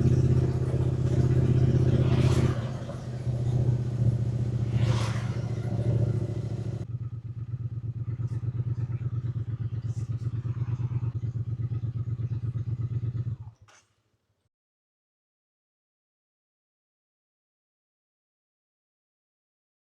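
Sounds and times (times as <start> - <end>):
motorcycle engine idling: 0.0 - 13.8.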